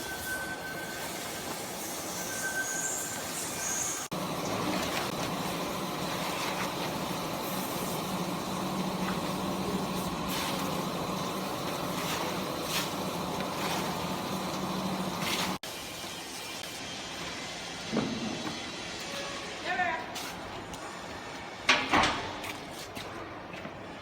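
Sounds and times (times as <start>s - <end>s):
mechanical wash noise: 0.0s - 19.2s
hydraulic pump hum: 4.1s - 15.6s.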